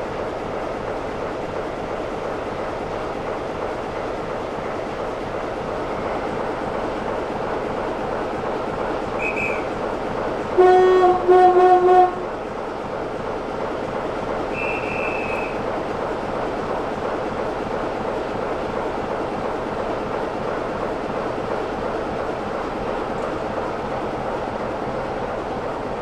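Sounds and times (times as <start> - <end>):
train running by: 0.0 - 26.0
locomotive horn blasts: 10.6 - 12.2.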